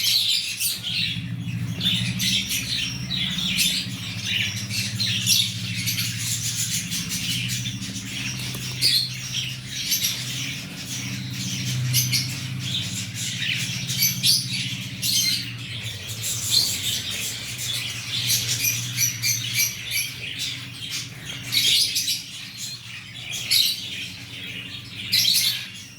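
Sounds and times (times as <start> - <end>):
low steady hum: 0.4 - 20.6.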